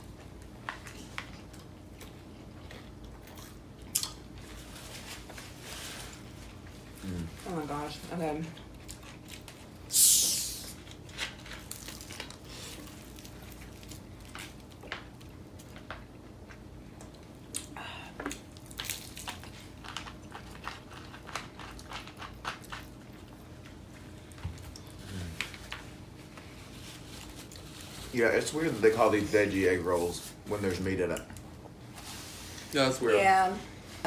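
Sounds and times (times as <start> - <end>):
people chewing food: 0.0 - 7.6, 8.4 - 31.8
food crunches and clicks: 0.2 - 4.5, 8.6 - 26.4.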